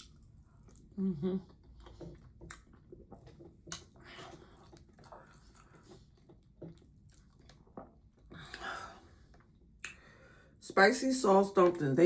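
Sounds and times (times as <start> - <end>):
person chewing food: 0.0 - 10.0
wet mouth sounds: 0.8 - 8.6.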